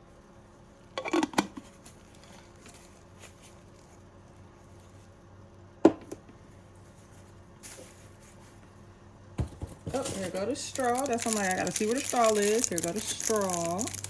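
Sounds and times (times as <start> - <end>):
rummaging through packaging: 9.9 - 14.0.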